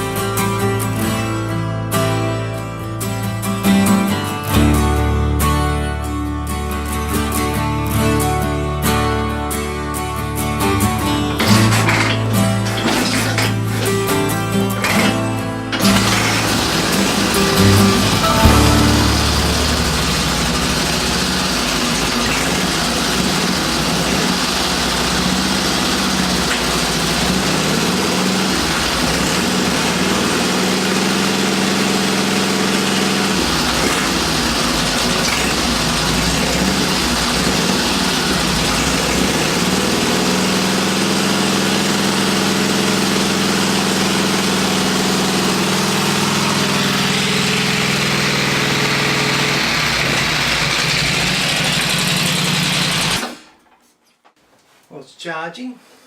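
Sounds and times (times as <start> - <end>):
motorcycle engine idling: 11.3 - 53.3.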